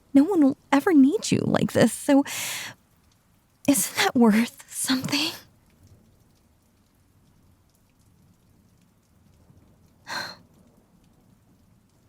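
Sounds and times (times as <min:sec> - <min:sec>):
faint steady rain: 0:00.0 - 0:12.0
woman breathing: 0:02.3 - 0:02.8, 0:10.1 - 0:10.4.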